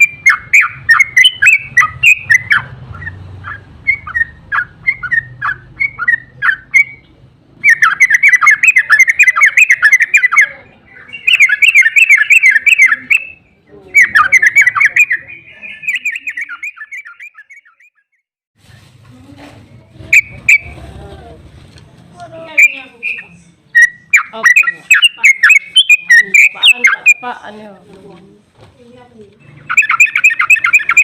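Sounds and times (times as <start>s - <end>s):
bird chattering song: 0.0s - 18.2s, 20.1s - 20.8s, 22.4s - 27.6s, 29.4s - 31.0s
short sharp bird notes: 14.0s - 18.2s.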